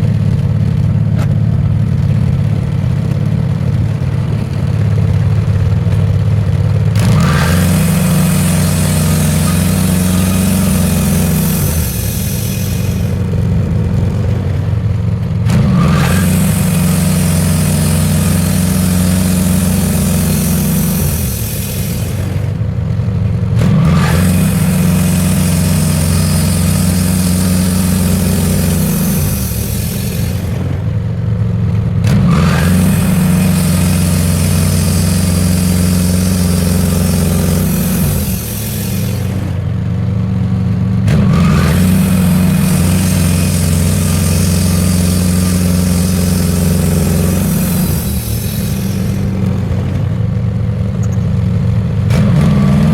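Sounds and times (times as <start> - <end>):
sawmill engine running: 0.0 - 52.9
band saw blade cutting wood: 7.0 - 13.4, 15.5 - 22.6, 23.6 - 30.8, 32.0 - 39.7, 41.1 - 50.2, 52.1 - 52.9.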